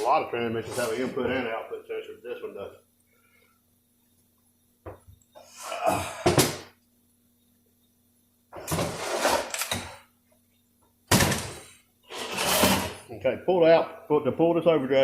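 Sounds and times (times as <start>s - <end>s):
metal parts rattling and scraping: 11.3s - 13.0s.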